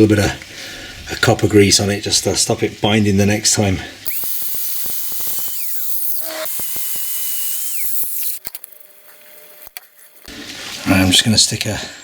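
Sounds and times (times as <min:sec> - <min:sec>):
power drill motor whine: 0:04.1 - 0:08.7.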